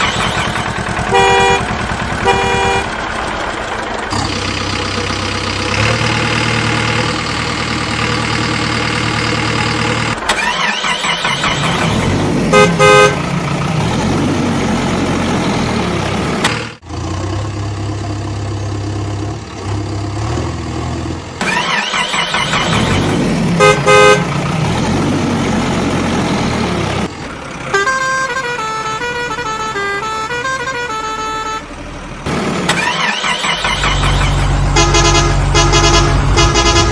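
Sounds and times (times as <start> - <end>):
engine hum: 0.0 - 36.9
changing tones: 32.7 - 36.9
short horn toots: 33.7 - 36.9.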